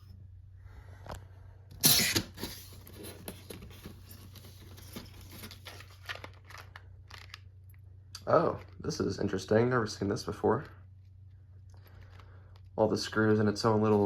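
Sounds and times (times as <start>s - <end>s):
packaging crinkling and rustling: 2.0s - 7.8s.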